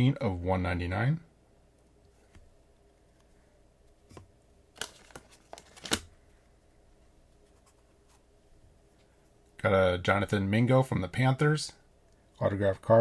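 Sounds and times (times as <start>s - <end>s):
trading cards clicking and rustling: 4.8s - 6.1s.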